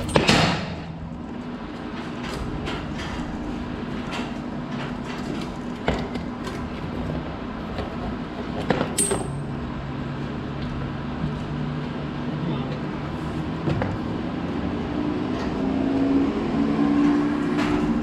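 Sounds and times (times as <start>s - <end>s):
hand tools clicking and knocking: 0.0s - 0.6s.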